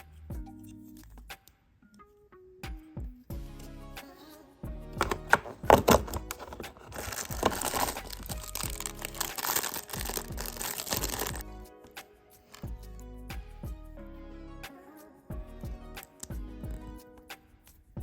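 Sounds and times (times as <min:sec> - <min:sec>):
soft background music: 0:00.0 - 0:18.0
packaging crinkling and tearing: 0:05.0 - 0:11.4.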